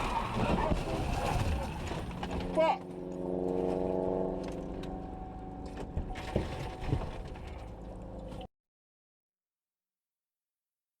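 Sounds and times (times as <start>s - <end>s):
vehicle drone: 0.0s - 8.5s.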